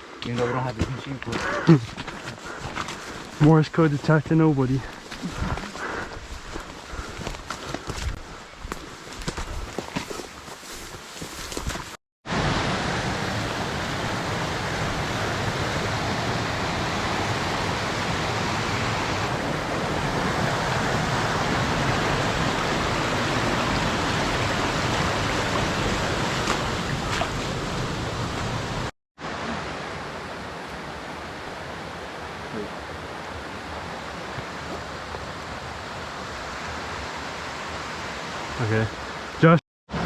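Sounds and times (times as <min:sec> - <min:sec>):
fast-running water rushing: 0:12.3 - 0:39.3.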